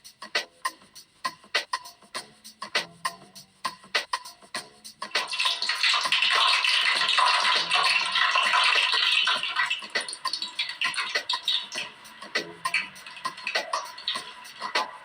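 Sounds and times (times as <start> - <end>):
hot oil sizzling and popping: 5.0 - 15.0.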